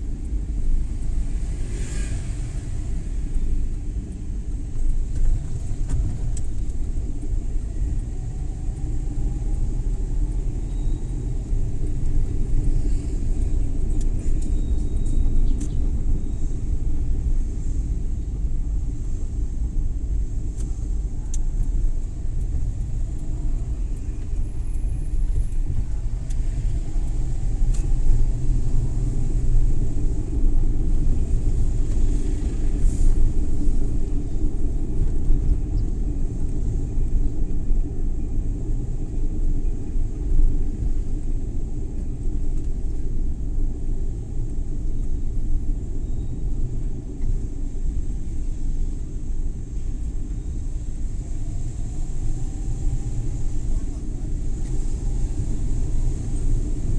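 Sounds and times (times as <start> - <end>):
road noise: 0.0 - 56.9
van engine rumble: 0.0 - 56.9
faint clicks: 20.5 - 28.2.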